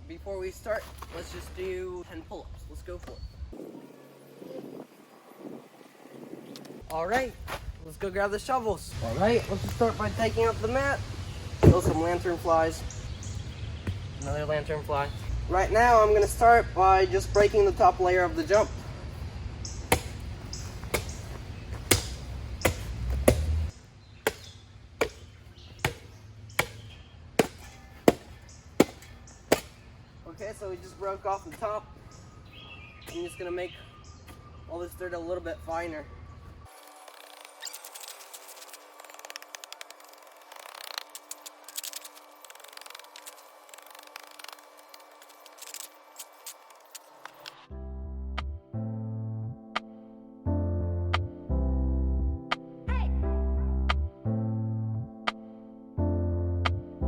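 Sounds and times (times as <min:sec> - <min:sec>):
shovel chopping into hard dirt: 0:19.9 - 0:20.3, 0:20.9 - 0:21.2, 0:21.8 - 0:23.7, 0:24.3 - 0:29.8
shovel scraping dirt: 0:24.3 - 0:29.8, 0:36.7 - 0:47.5.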